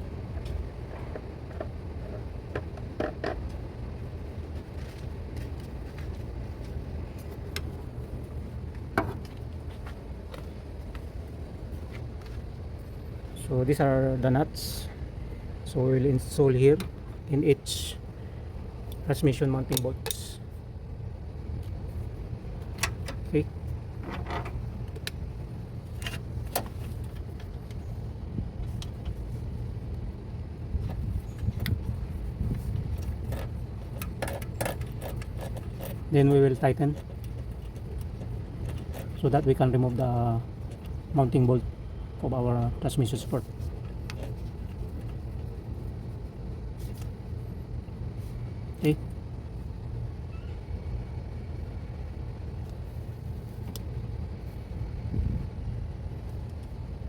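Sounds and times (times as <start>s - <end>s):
low background hum: 0.0s - 57.0s
low background rumble: 0.0s - 57.0s.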